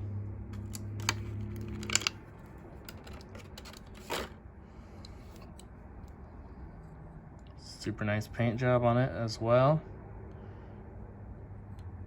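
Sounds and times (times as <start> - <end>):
toy truck and packaging clicking: 0.6 - 4.4.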